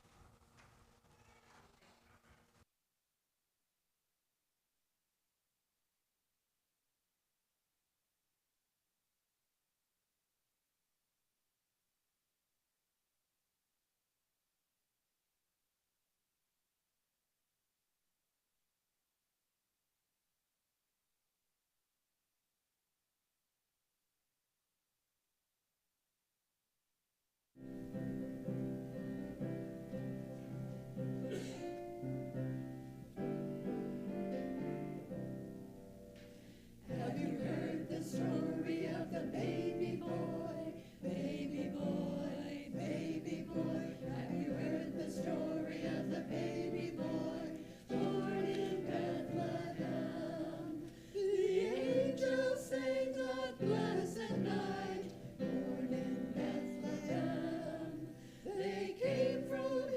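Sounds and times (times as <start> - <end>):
choir singing: 36.8 - 59.9.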